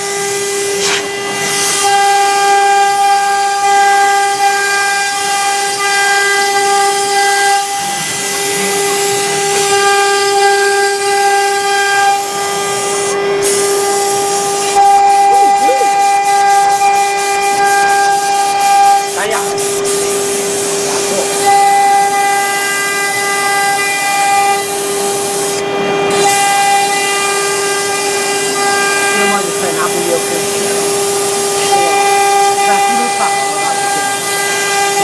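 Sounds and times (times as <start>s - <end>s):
router spindle high whine: 0.0s - 35.0s
cutting noise hiss: 0.6s - 2.0s, 12.6s - 25.6s, 26.2s - 35.0s.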